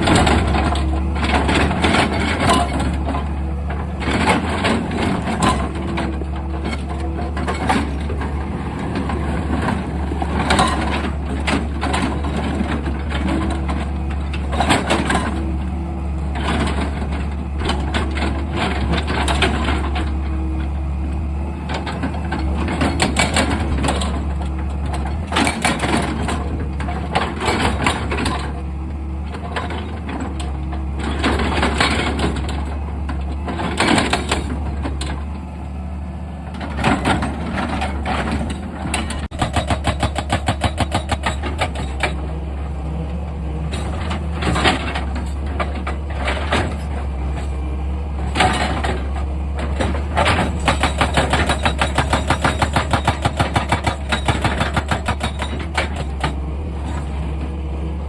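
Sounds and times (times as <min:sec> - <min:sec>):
excavator engine humming: 0:00.0 - 0:58.0
digging knocks and scrapes: 0:36.4 - 0:57.6.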